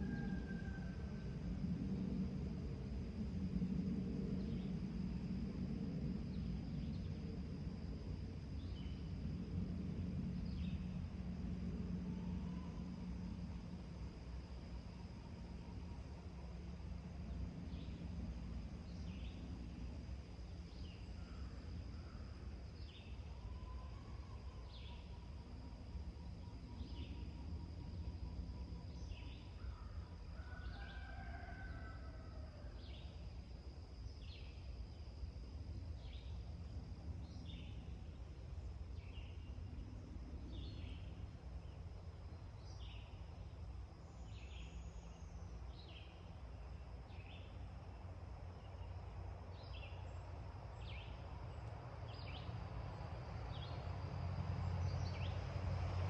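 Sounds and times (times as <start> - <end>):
low rumble: 0.0 - 29.2.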